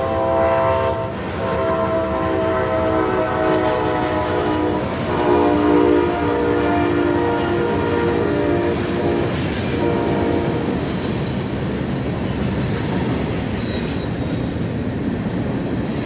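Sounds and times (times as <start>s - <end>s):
locomotive air horn blowing: 0.0s - 10.6s
train rumble: 0.0s - 16.0s.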